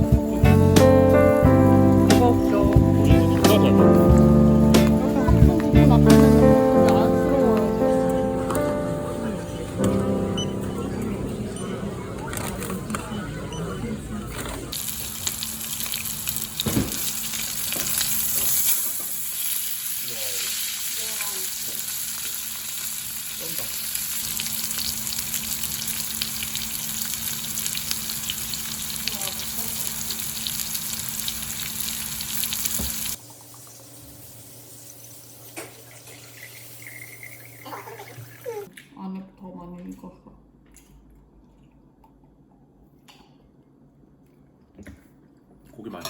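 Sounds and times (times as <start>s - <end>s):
meat sizzling in a pan: 14.7s - 38.4s.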